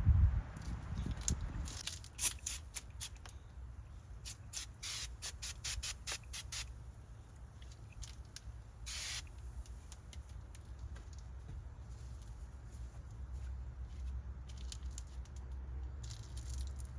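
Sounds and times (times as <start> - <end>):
spray bottle hissing: 2.2 - 3.2, 4.2 - 6.8, 8.8 - 9.4.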